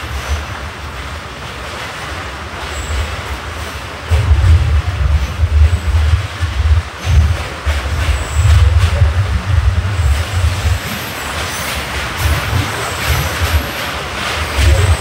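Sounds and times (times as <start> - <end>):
steady rushing noise: 0.0 - 15.0
train wheels rumbling on rails: 0.0 - 15.0
wheels squealing: 4.1 - 15.0.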